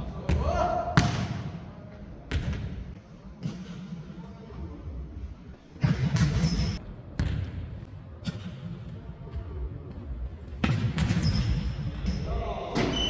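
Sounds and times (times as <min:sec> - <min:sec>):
ball kicked and bouncing on wood floor: 0:06.2 - 0:12.2
faint players' voices: 0:06.8 - 0:12.9.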